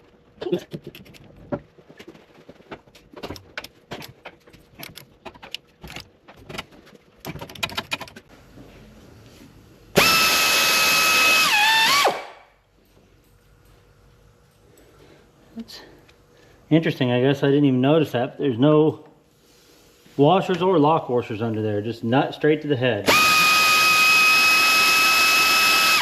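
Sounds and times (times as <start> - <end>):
pneumatic air ratchet whine: 10.0 - 12.5, 23.1 - 26.0.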